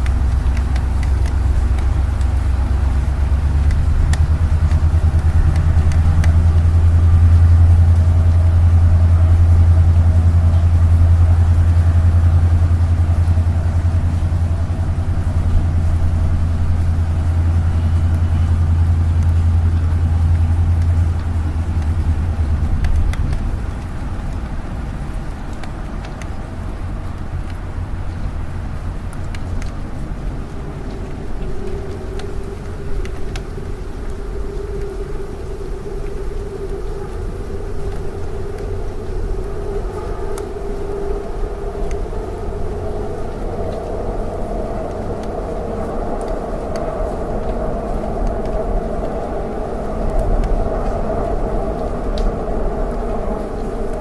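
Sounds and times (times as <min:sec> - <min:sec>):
light rain drops ticking: 0:00.0 - 0:54.0
road traffic rumble: 0:00.0 - 0:54.0.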